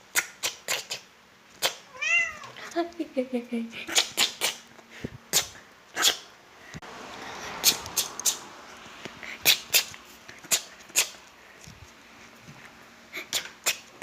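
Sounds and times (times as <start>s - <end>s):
person making clicking sounds: 7.7s - 8.4s.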